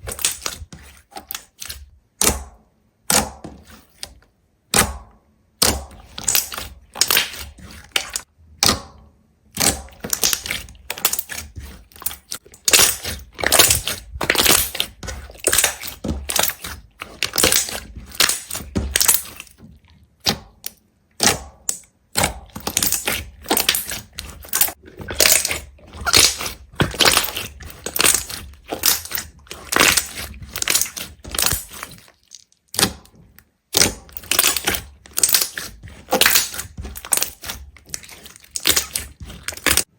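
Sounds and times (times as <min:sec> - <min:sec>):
brittle crunching and crackling: 0:09.6 - 0:19.7, 0:21.6 - 0:39.9.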